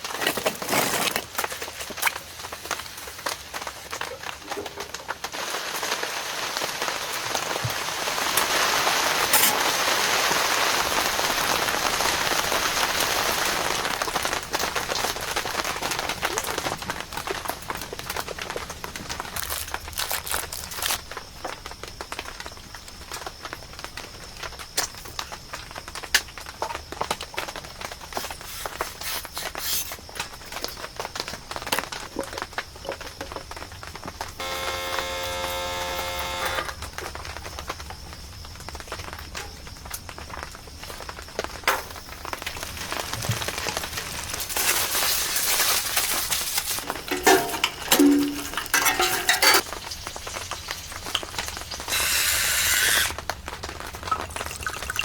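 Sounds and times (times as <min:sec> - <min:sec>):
utensils clinking and scraping: 0:00.0 - 0:02.2, 0:09.3 - 0:09.7, 0:44.5 - 0:49.8
food sizzling in a pan: 0:43.7 - 0:53.3.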